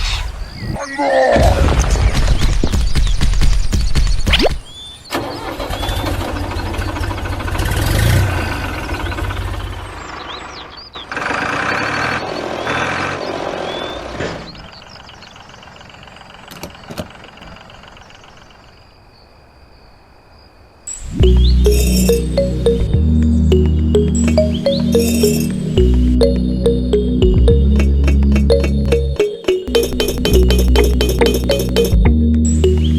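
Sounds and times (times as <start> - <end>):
engine chugging: 5.2 - 13.9
music: 21.1 - 32.9.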